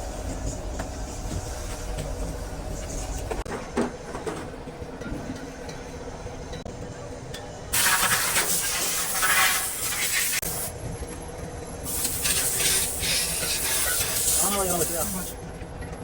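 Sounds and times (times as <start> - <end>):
high-pressure jet hissing: 7.8 - 10.7, 11.9 - 15.4.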